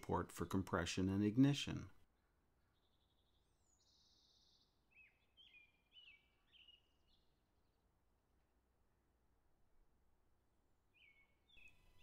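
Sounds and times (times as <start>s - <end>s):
bird chirping: 0.0s - 7.9s, 10.9s - 12.0s.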